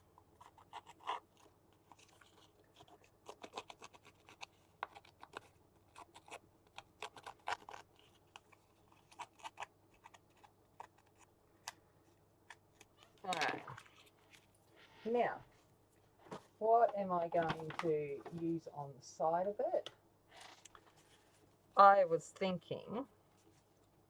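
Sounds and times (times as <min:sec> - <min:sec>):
paper scratching and clicking: 0:00.2 - 0:11.3.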